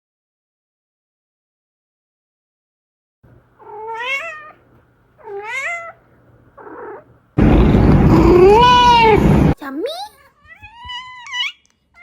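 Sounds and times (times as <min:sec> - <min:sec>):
kitten meowing: 0:03.6 - 0:04.6, 0:05.2 - 0:06.0, 0:06.6 - 0:07.0, 0:08.1 - 0:09.3, 0:10.2 - 0:12.0
loud burst of noise: 0:07.4 - 0:09.6.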